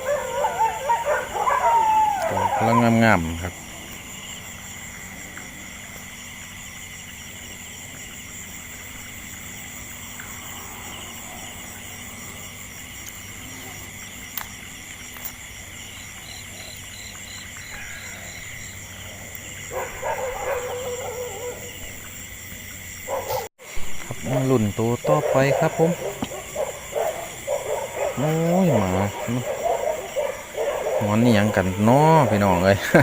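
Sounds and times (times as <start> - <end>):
dogs howling: 0.0 - 4.0, 9.9 - 12.7, 16.0 - 22.2, 23.0 - 23.5, 24.8 - 33.0
frogs and insects chorus: 0.0 - 33.0
pulsed animal call: 17.5 - 21.9.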